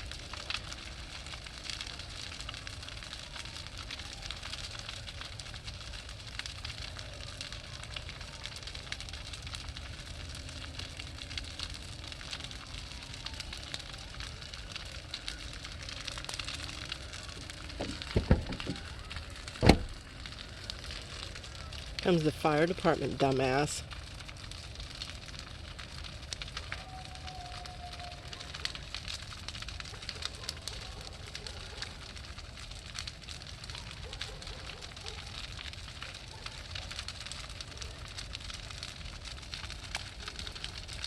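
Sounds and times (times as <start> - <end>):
bonfire crackling and hissing: 0.0 - 41.0
sharp pops or knocks: 17.8 - 18.8, 19.6 - 20.0.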